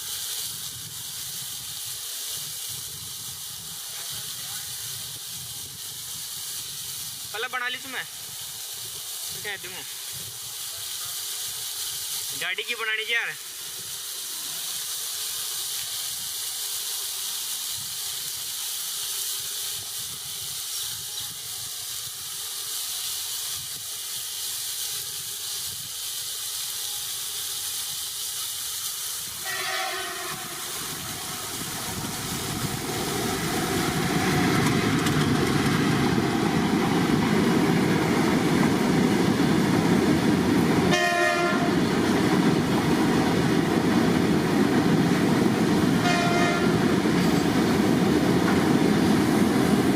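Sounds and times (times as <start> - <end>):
steady hiss: 0.0 - 49.9
train rumble: 0.0 - 49.9
train horn blast: 29.4 - 30.8, 40.9 - 41.8, 46.0 - 46.9.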